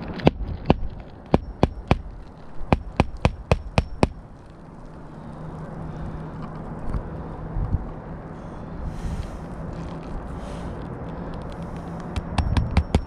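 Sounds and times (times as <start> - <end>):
hammer striking nails: 2.7 - 4.2, 12.2 - 13.0.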